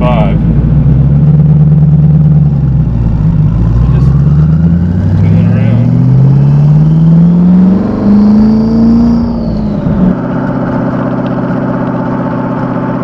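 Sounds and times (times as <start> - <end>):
car engine under throttle: 0.0 - 13.0.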